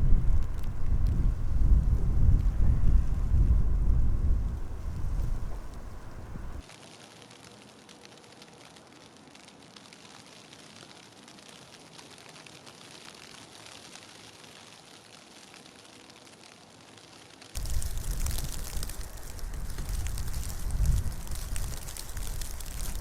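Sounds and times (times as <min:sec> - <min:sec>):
gusting wind buffeting microphone: 0:00.0 - 0:06.6, 0:17.6 - 0:23.0
snow hissing and ticking: 0:00.0 - 0:23.0.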